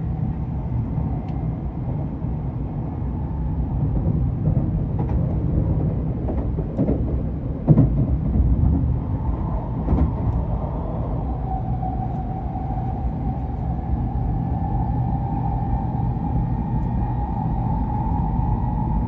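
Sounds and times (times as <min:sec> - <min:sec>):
train rumbling: 0:00.0 - 0:19.0
steady whine: 0:10.4 - 0:19.0.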